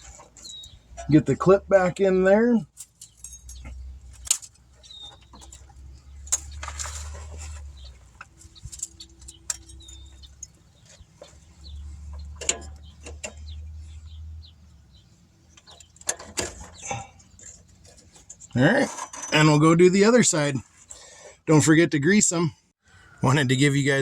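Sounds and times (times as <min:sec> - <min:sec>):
clicks and metal clinks: 0:02.8 - 0:07.1, 0:08.2 - 0:11.4.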